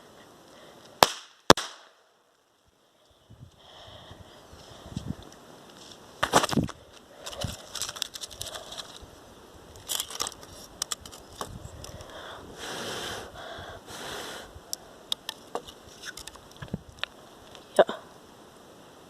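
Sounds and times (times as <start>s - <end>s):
bonfire crackling: 0.0s - 19.0s
firecrackers popping: 1.0s - 2.1s
short hissing: 12.1s - 14.6s.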